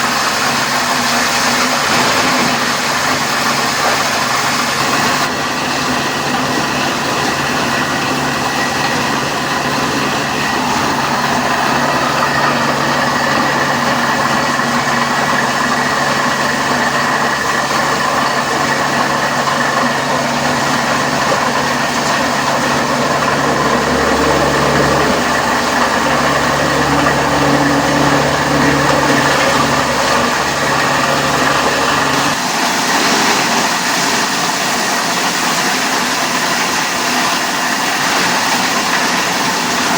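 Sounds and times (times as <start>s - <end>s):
recycling machinery drone and hum: 0.0s - 39.9s.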